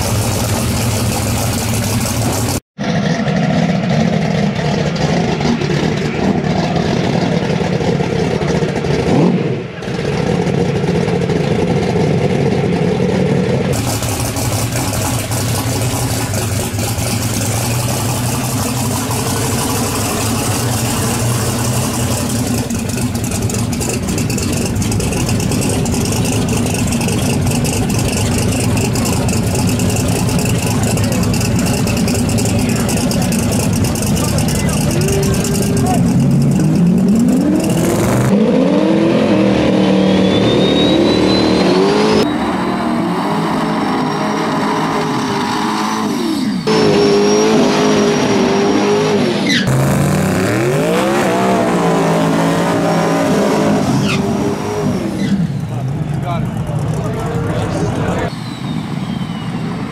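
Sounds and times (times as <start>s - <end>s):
car engine idling: 0.0s - 38.4s, 55.2s - 59.9s.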